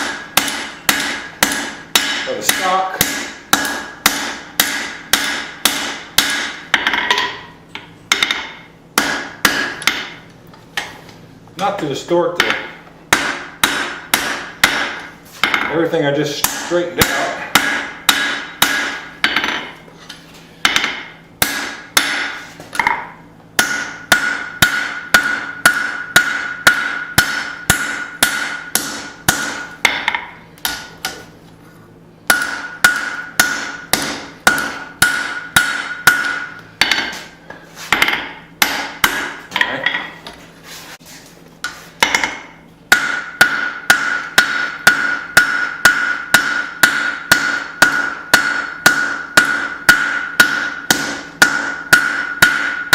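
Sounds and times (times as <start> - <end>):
hammer striking steel on anvil: 0.0 - 10.2, 12.4 - 19.8, 20.6 - 31.2, 32.3 - 40.2, 41.6 - 52.9.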